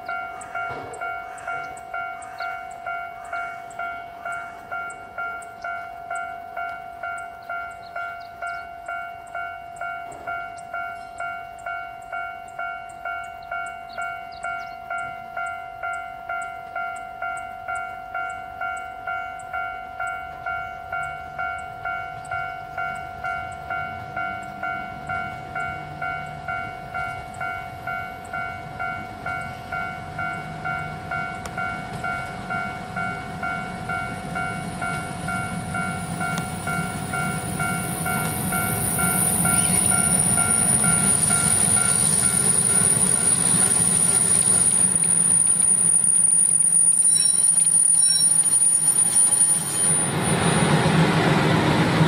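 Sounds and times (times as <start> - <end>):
level crossing warning bell: 0.0 - 52.0
train engine and wheel rumble: 0.0 - 52.0
train brakes squealing: 31.1 - 52.0.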